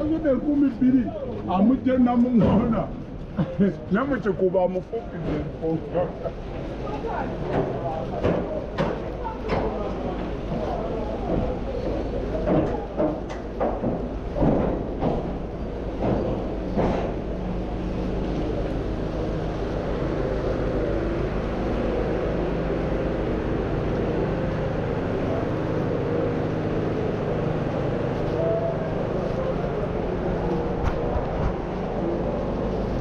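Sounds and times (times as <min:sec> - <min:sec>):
vehicle engine humming: 0:00.0 - 0:33.0.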